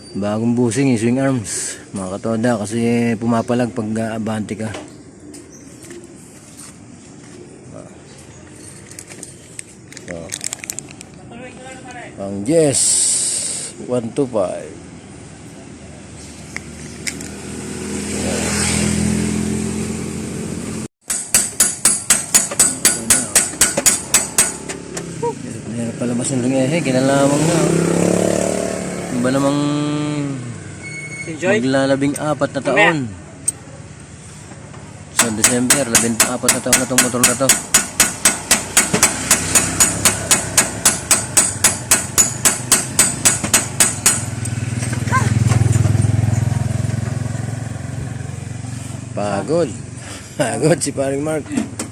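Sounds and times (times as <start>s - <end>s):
hammer striking metal: 21.0s - 25.0s, 35.2s - 44.6s
engine running: 37.5s - 50.7s.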